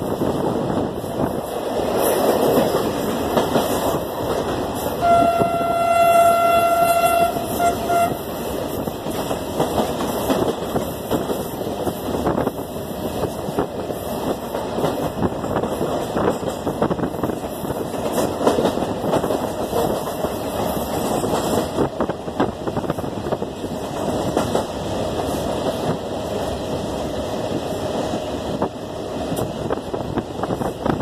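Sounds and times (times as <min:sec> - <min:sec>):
train rumble: 0:00.0 - 0:31.0
wheels clacking over rail joints: 0:01.5 - 0:05.8, 0:13.4 - 0:22.5
train horn: 0:05.0 - 0:08.4.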